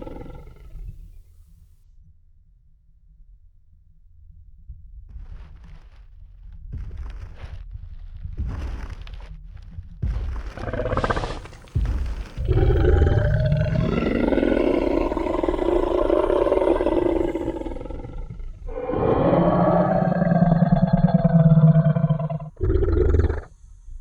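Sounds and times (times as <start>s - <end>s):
dinosaur roar: 0.0s - 1.0s, 10.4s - 23.5s
heavy low thuds: 5.1s - 18.8s.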